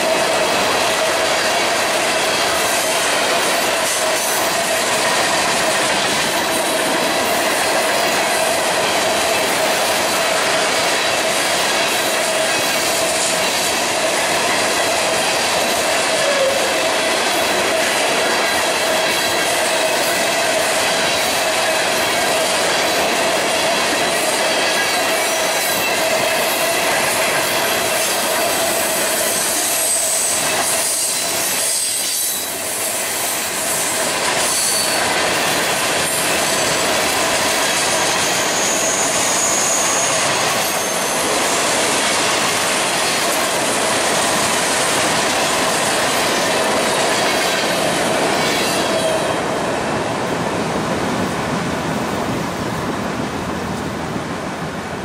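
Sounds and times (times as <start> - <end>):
freight train wheels rumbling: 0.0 - 55.0
wheel flanges squealing: 36.1 - 42.5.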